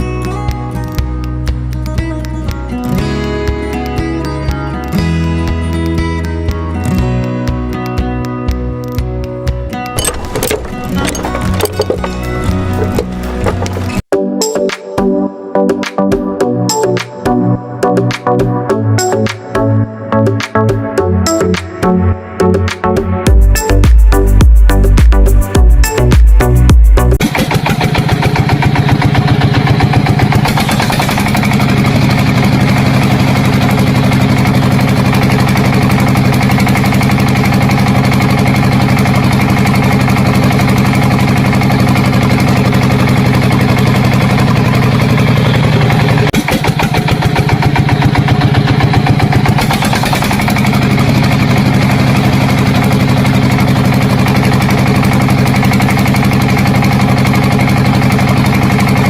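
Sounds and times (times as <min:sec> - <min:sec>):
motor humming and chugging: 0:10.0 - 0:14.0, 0:27.2 - 0:59.0.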